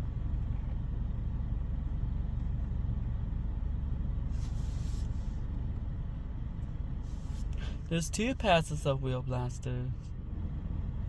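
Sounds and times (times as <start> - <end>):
car wash low rumble: 0.0 - 11.0.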